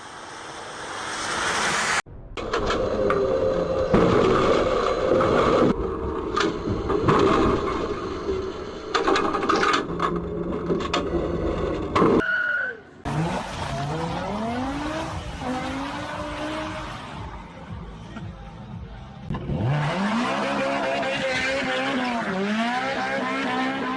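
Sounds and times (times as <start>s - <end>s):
car road noise: 0.0s - 23.9s
car engine accelerating: 13.0s - 23.9s.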